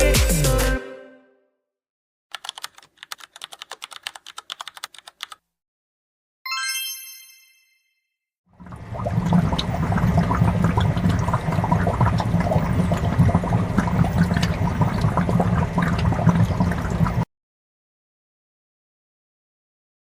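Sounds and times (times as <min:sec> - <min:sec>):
water rushing and splashing: 0:08.6 - 0:17.2.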